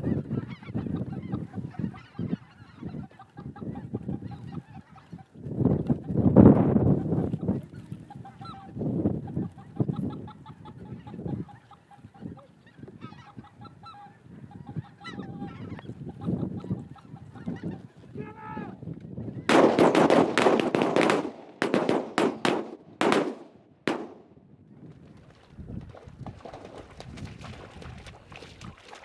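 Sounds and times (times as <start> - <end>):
geese honking: 0.0 - 5.4, 8.0 - 18.0
shotgun blasts: 19.5 - 24.3.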